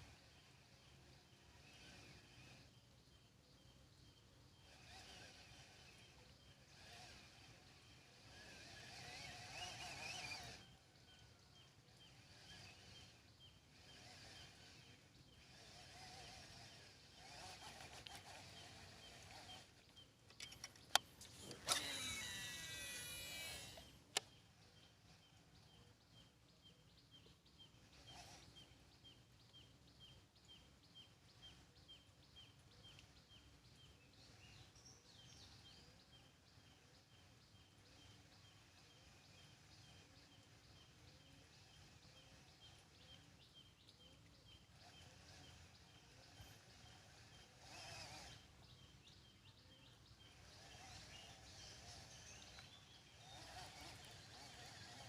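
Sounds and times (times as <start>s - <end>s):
loud whirring: 0.0s - 2.9s, 4.6s - 26.2s, 27.7s - 28.9s, 44.5s - 55.0s
sharp clicks: 20.3s - 22.4s, 23.4s - 24.3s.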